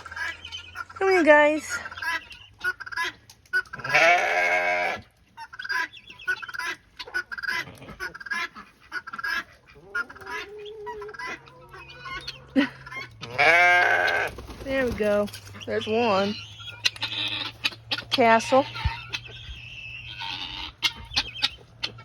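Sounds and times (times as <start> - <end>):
poultry clucking and squawking: 0.0 - 22.0.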